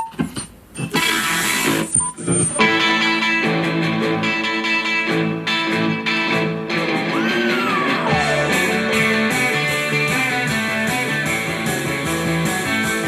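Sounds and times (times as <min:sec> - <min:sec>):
rock music with electric guitar: 0:02.6 - 0:13.0
steady drum beat: 0:07.2 - 0:13.0.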